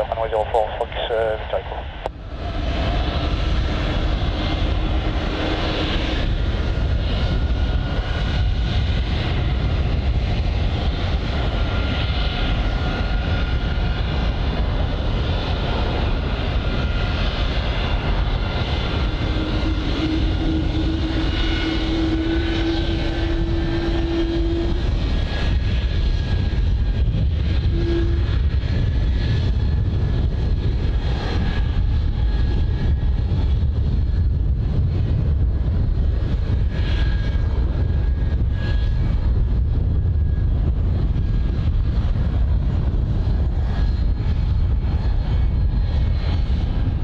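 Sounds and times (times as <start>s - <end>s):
jet engines running: 0.0s - 47.0s.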